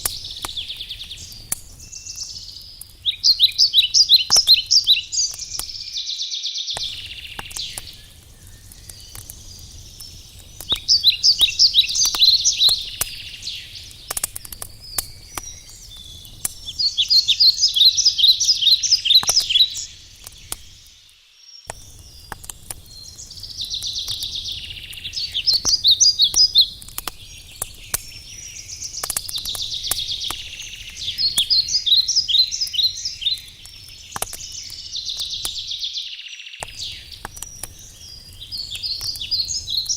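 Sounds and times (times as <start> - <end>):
campfire crackling and popping: 0.0 - 36.0, 36.6 - 39.9
songbird trilling: 0.1 - 9.1, 10.6 - 13.9, 14.8 - 20.6, 23.6 - 26.7, 27.4 - 37.2.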